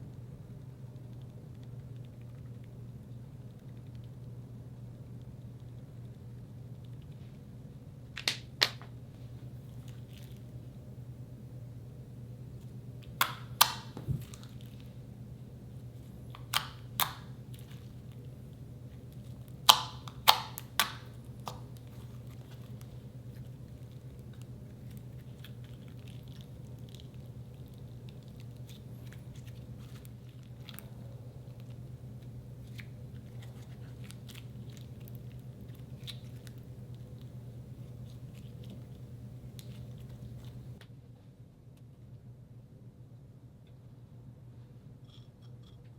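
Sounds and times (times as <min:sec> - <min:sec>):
steady low hum: 0:00.0 - 0:45.9
slime popping and clicking: 0:13.0 - 0:14.6, 0:16.4 - 0:17.7, 0:19.6 - 0:21.9.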